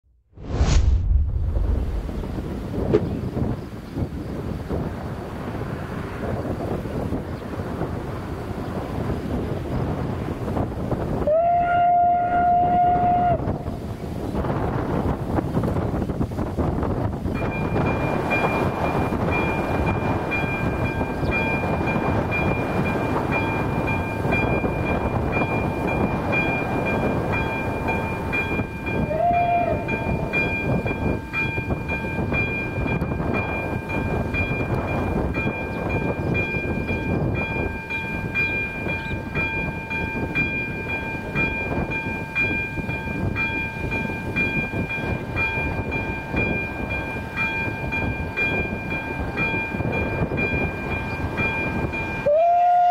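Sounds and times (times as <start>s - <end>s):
loud rumbling noise: 0.3s - 3.6s.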